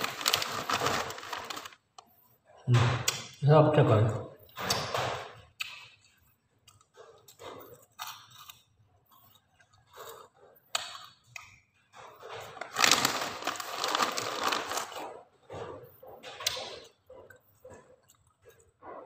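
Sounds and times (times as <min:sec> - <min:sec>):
crackers crunching: 0:00.0 - 0:02.0, 0:05.6 - 0:11.4, 0:12.4 - 0:15.3.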